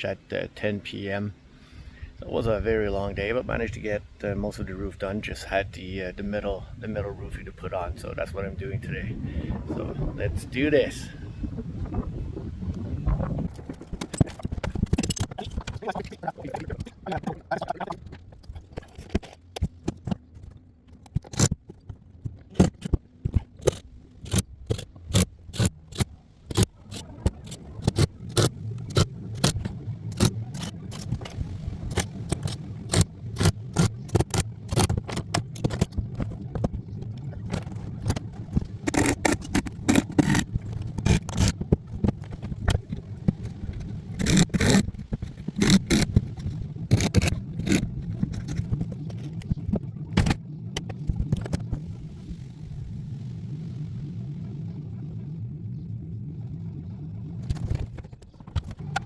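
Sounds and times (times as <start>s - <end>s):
steady low rumble: 0.0s - 59.0s.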